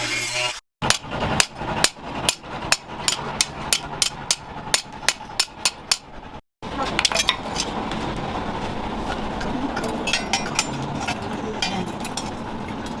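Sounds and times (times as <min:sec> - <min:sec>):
hammer striking steel: 0:00.8 - 0:06.2.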